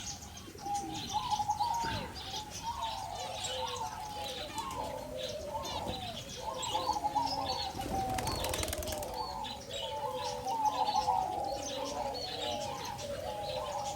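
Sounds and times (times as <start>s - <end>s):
birds chirping and calling: 0.0s - 13.9s
rapid wing flapping: 7.8s - 9.2s.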